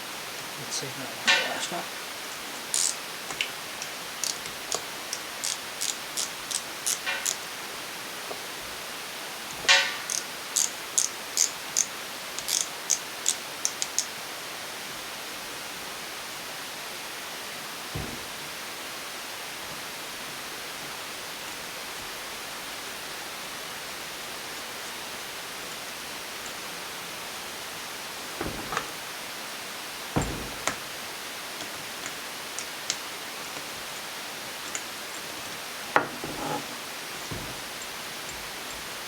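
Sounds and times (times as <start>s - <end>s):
steady hiss: 0.0s - 39.0s
knock: 18.0s - 18.4s, 28.4s - 29.0s, 30.2s - 30.8s, 36.0s - 37.8s
faint thump: 18.0s - 18.5s, 28.4s - 29.1s, 30.2s - 31.0s, 36.0s - 38.0s.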